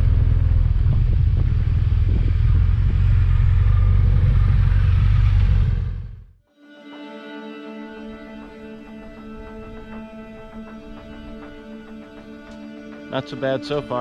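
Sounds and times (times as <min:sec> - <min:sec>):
wind rumble on microphone: 0:00.0 - 0:06.2
motorcycle engine at road speed: 0:00.0 - 0:06.4.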